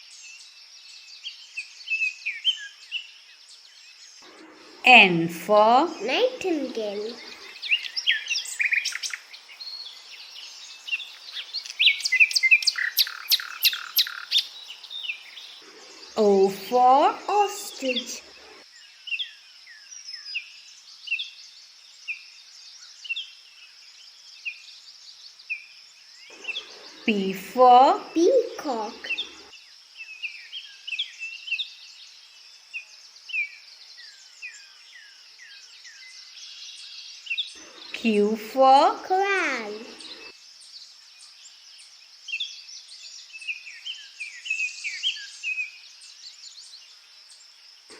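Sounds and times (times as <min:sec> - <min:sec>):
nightingale singing: 0:00.0 - 0:23.5, 0:24.2 - 0:47.5
small songbirds chirping: 0:00.0 - 0:47.9
steady high hiss: 0:04.2 - 0:18.6, 0:26.3 - 0:29.5.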